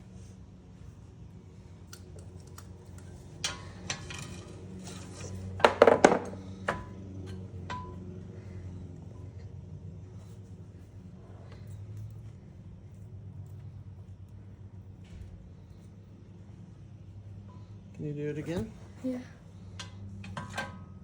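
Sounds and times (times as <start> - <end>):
steady low hum: 0.0 - 21.0
metal parts clanking: 3.2 - 8.0.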